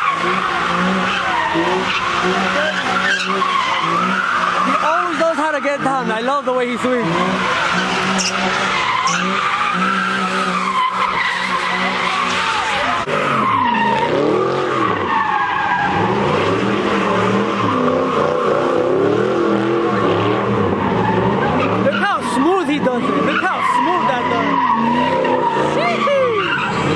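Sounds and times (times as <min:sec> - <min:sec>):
tyre squeal: 0:00.0 - 0:16.6
car engine revving: 0:00.0 - 0:26.9.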